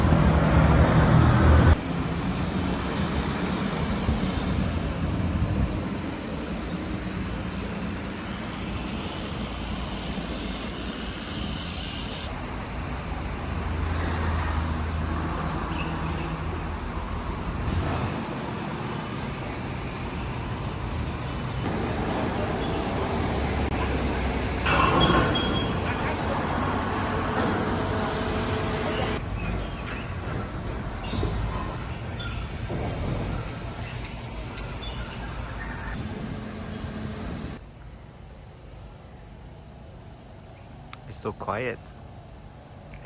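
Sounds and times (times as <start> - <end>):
vehicle engines passing: 0.0 - 5.6, 12.3 - 37.6
road traffic noise: 0.0 - 43.0.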